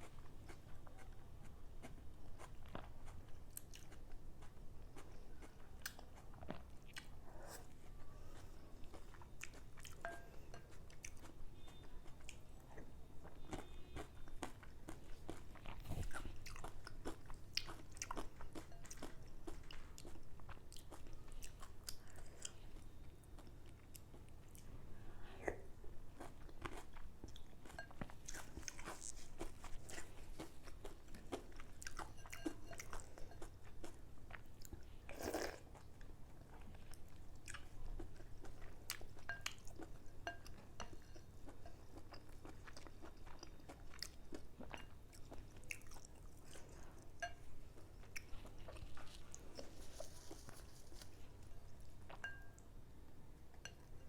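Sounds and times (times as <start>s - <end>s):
chewing and biting food: 7.8s - 22.6s, 26.1s - 52.4s.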